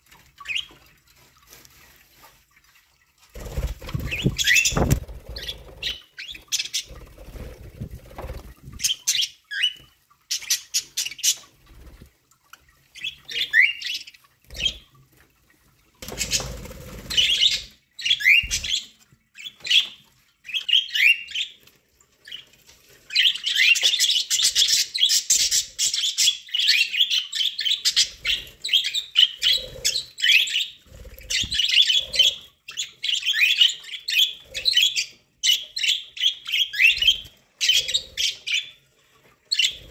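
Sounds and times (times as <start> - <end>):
budgerigars chirping and chattering: 3.9 - 11.5, 17.1 - 21.6, 23.1 - 38.8, 39.5 - 39.9.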